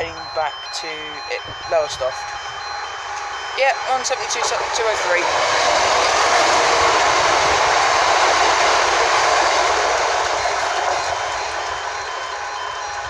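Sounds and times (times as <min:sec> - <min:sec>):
train passing: 0:00.0 - 0:13.0.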